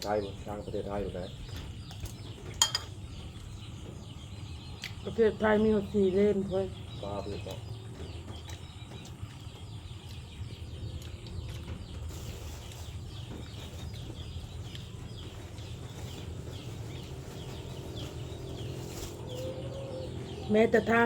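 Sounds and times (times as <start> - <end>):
small birds chirping: 0.0 - 21.0
steady low rumble: 0.0 - 21.0.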